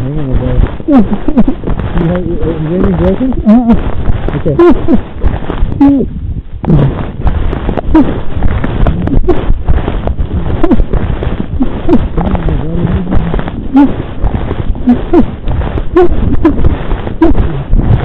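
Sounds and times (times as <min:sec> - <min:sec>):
muffled rumbling on microphone: 0:00.0 - 0:18.0
person gasping and groaning: 0:10.4 - 0:14.1, 0:14.8 - 0:15.4.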